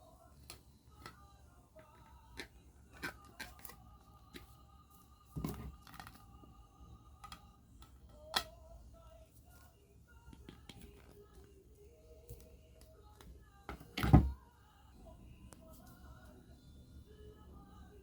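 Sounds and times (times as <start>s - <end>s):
faint background music: 0.0s - 18.0s.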